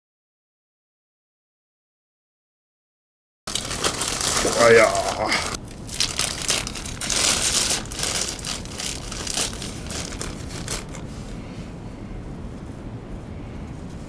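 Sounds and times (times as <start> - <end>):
dry material crinkling: 3.5 - 11.5
low rumble: 3.5 - 14.0.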